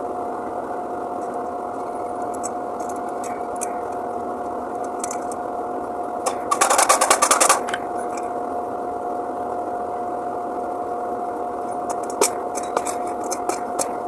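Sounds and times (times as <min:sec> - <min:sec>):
steady mechanical hum: 0:00.0 - 0:14.0
rapid clicks: 0:06.3 - 0:08.2.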